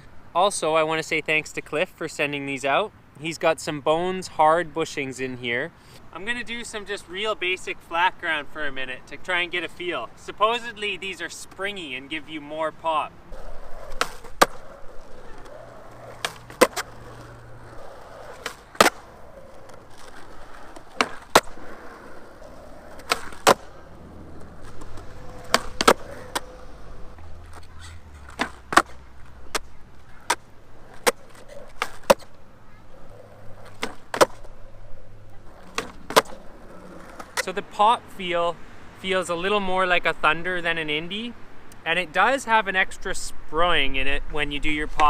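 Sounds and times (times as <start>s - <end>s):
skateboard wheels rolling: 6.2s - 40.0s
skateboard tail pops and landings: 13.7s - 17.0s, 18.2s - 21.9s, 22.9s - 23.8s, 24.6s - 26.5s, 28.3s - 32.4s, 33.6s - 34.5s, 35.6s - 36.4s.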